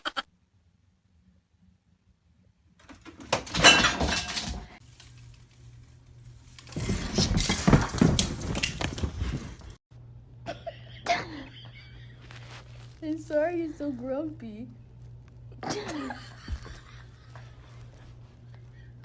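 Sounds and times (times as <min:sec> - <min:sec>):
low steady hum: 0:00.3 - 0:19.0
clattering and crashing: 0:02.8 - 0:04.8, 0:06.6 - 0:09.4.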